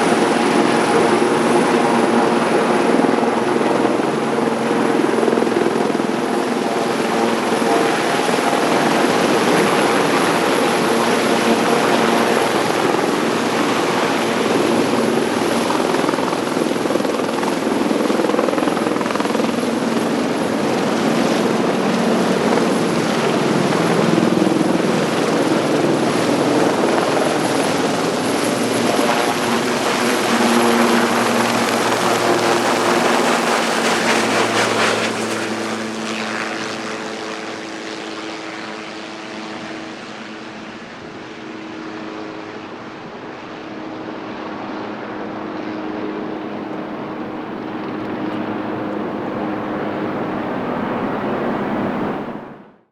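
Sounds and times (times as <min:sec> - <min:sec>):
high turbine whine: 0:00.0 - 0:37.4
helicopter rotor noise: 0:00.0 - 0:52.6.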